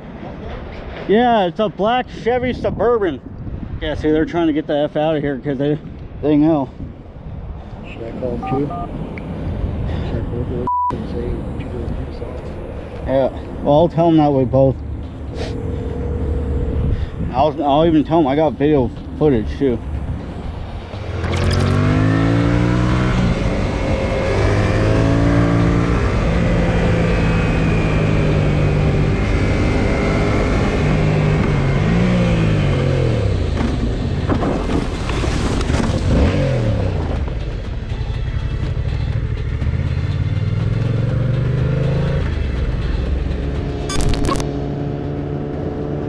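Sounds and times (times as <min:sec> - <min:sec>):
wind and road noise: 0:00.0 - 0:46.0
motorcycle engine accelerating: 0:20.8 - 0:34.0.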